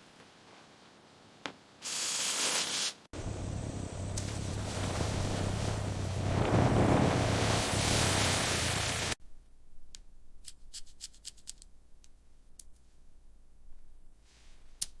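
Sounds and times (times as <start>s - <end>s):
rushing hiss with low rumble: 3.2s - 9.2s.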